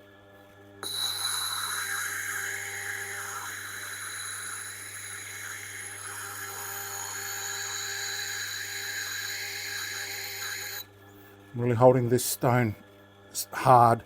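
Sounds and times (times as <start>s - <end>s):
grinder motor hum: 0.8s - 10.9s
stone scraping on grinding wheel: 0.8s - 10.9s.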